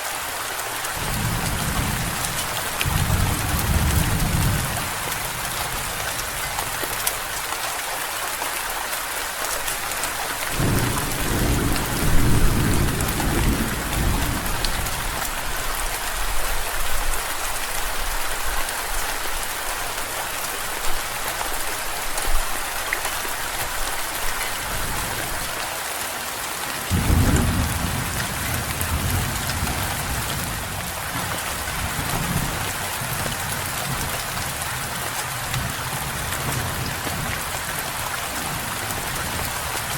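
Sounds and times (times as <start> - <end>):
steady rain: 0.0 - 39.9
thunder rolling: 1.0 - 6.2.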